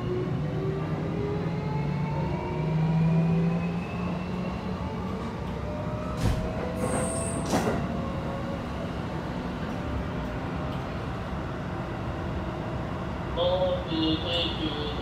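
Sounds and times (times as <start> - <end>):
train wheels rumbling on rail: 5.0 - 15.0.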